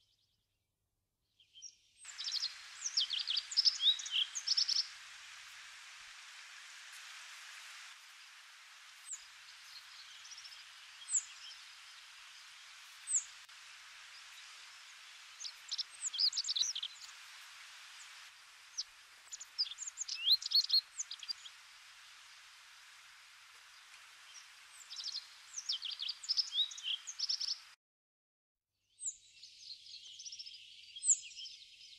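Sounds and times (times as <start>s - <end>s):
small birds chirping: 1.4s - 27.8s, 28.9s - 31.9s
birds twittering: 2.0s - 5.0s, 8.9s - 22.5s, 23.5s - 27.7s
steady outdoor hiss: 2.0s - 27.8s.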